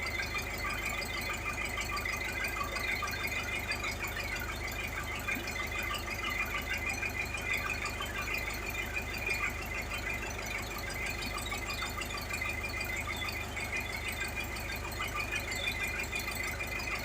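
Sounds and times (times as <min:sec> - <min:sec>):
boat engine droning with whine: 0:00.0 - 0:17.0.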